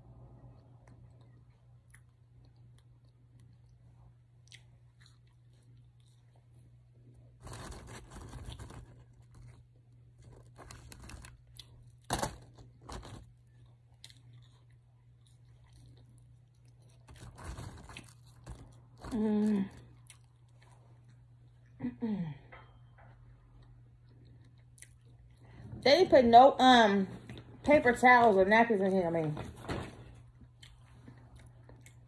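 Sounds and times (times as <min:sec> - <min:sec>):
person chewing crunchy food: 0:00.5 - 0:21.8, 0:23.6 - 0:25.5, 0:30.4 - 0:32.0.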